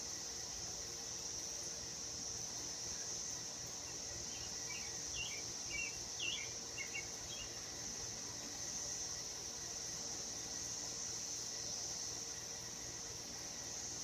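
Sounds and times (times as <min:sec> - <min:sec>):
insects trilling: 0:00.0 - 0:14.0
small bird chirping: 0:04.3 - 0:07.6.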